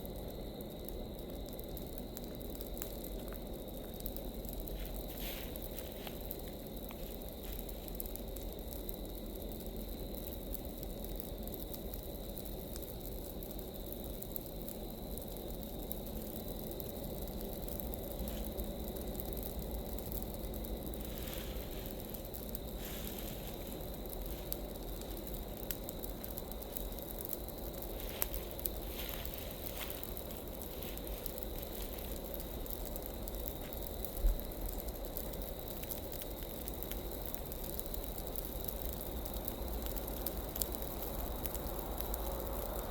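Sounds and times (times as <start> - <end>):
fire crackling and popping: 0.0 - 42.9
roar of flames: 0.1 - 42.9.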